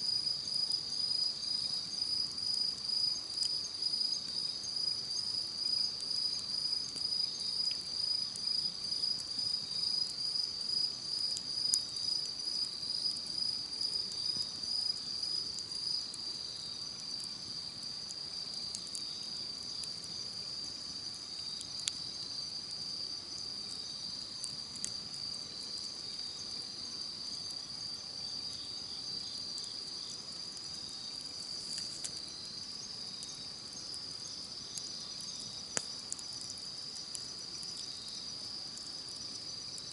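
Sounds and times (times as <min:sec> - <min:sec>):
crickets chirping: 0:00.0 - 0:39.9
campfire pops: 0:16.9 - 0:20.2, 0:21.0 - 0:22.2, 0:23.7 - 0:26.6, 0:30.6 - 0:32.3, 0:32.9 - 0:39.0.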